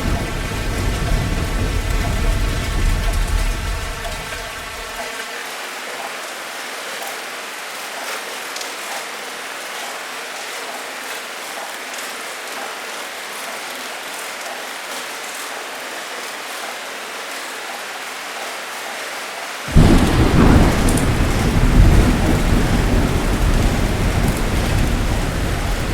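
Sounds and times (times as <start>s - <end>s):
thunder rumbling: 0.0s - 5.0s, 19.7s - 25.9s
heavy rain pouring: 0.0s - 25.9s.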